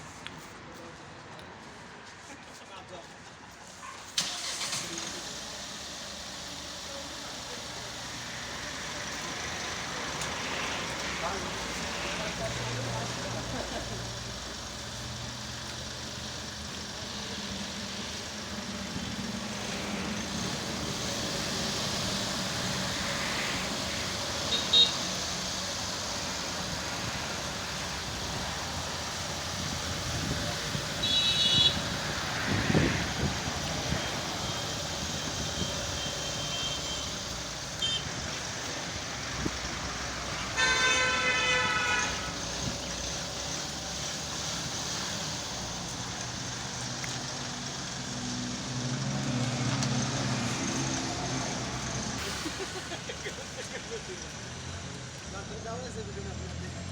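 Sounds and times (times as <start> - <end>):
road traffic noise: 0.0 - 56.9
vehicle horns honking: 24.4 - 25.6, 30.8 - 32.1, 35.4 - 38.3, 40.3 - 42.6.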